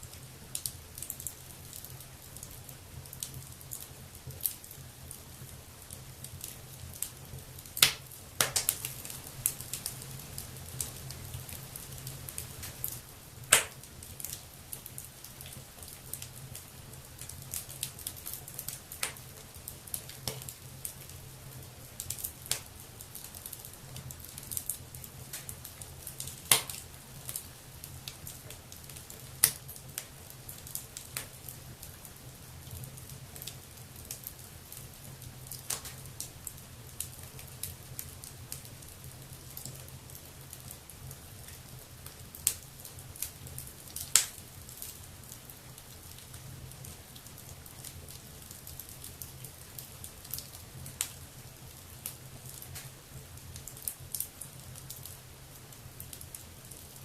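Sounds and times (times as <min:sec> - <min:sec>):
low fire rumble: 0:00.0 - 0:57.0
wood fire crackling: 0:00.0 - 0:57.0
loud sharp fire pops: 0:07.8 - 0:09.0, 0:13.5 - 0:13.8, 0:26.5 - 0:26.8.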